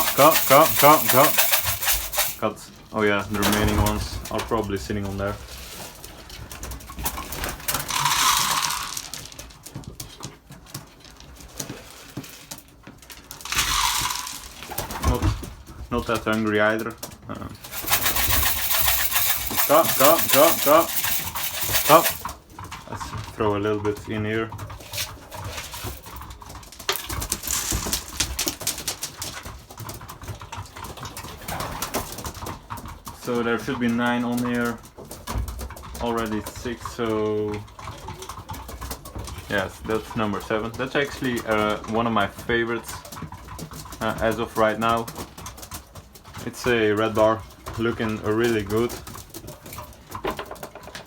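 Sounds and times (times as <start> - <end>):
pigeons pecking grain: 0.0 - 2.4, 3.0 - 51.0
pigeons rustling: 24.8 - 30.4.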